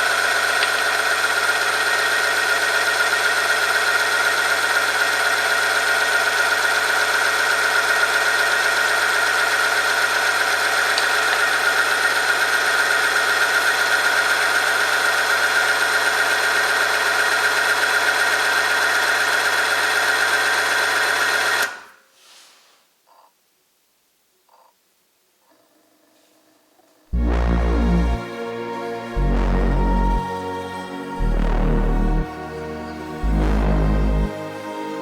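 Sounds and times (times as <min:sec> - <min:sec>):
test machine motor whining: 0:27.2 - 0:34.4.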